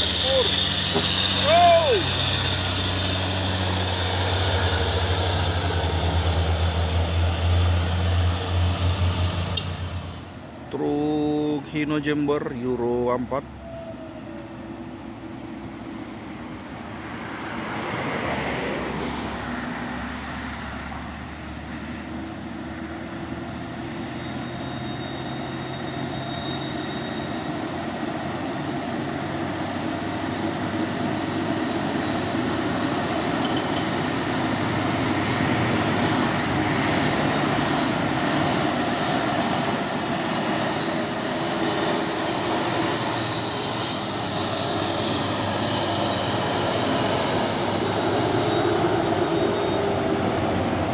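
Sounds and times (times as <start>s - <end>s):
truck diesel engine under load: 0.0s - 12.8s, 18.2s - 50.9s
high steady whine: 26.1s - 50.9s.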